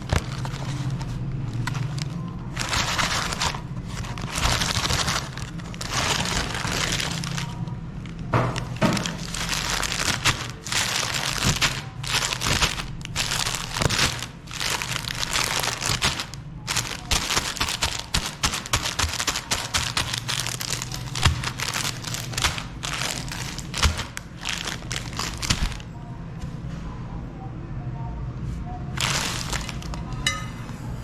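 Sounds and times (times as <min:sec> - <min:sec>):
ice cream cracking in grinder: 0:00.0 - 0:25.9, 0:29.0 - 0:30.1.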